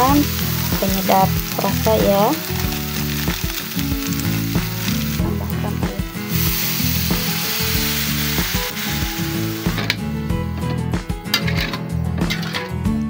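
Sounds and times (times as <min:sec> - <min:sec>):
paste sizzling in oil: 0:00.0 - 0:10.1
background music: 0:00.0 - 0:13.0.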